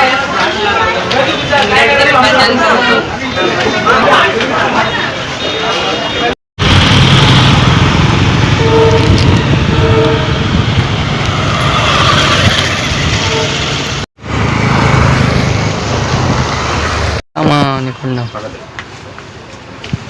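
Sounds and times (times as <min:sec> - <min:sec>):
train wheels rumbling: 0:06.6 - 0:17.2.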